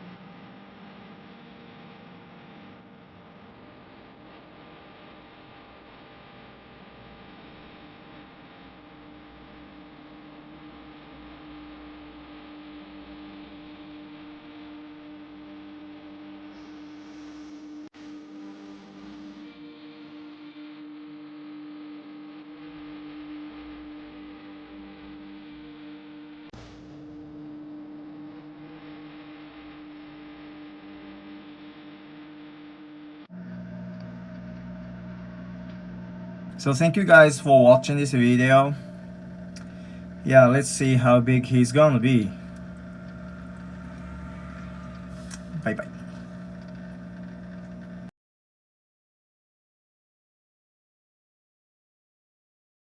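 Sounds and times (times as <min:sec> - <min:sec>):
steady hum with held tone: 0:33.4 - 0:48.1
faint hiss: 0:36.6 - 0:48.1.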